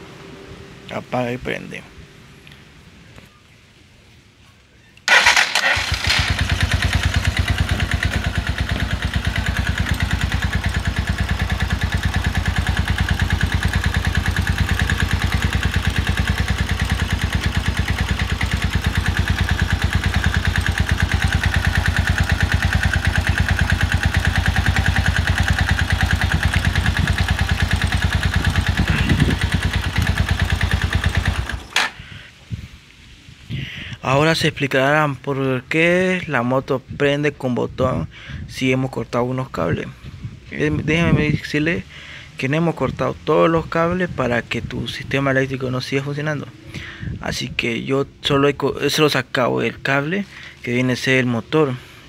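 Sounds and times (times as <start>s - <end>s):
motorcycle engine idling: 5.1s - 32.2s.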